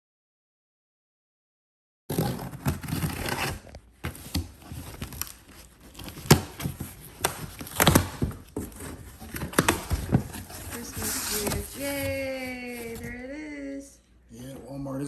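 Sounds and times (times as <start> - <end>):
cardboard box tearing and crinkling: 2.1 - 13.2.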